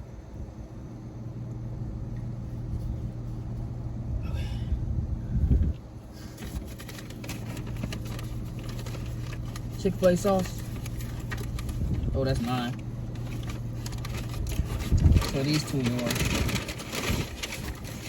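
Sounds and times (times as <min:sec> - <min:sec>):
car interior engine rumble: 0:00.0 - 0:18.0
paper bag crinkling: 0:06.2 - 0:18.0.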